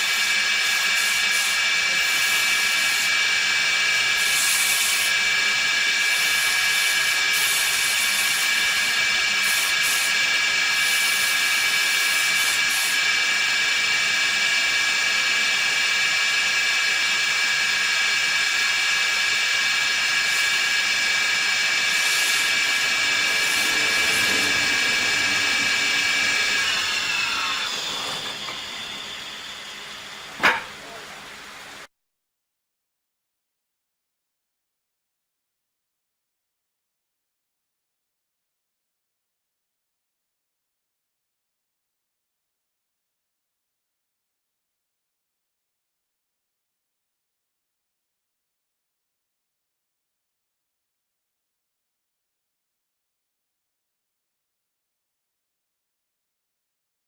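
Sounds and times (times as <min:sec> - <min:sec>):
woodworking machine whine: 0:00.0 - 0:31.9.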